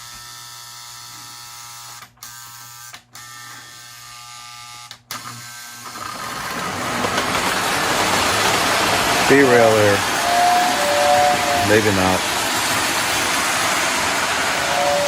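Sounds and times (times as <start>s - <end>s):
model train motor hum: 3.2s - 15.0s
rushing noise of moving train: 6.3s - 15.0s.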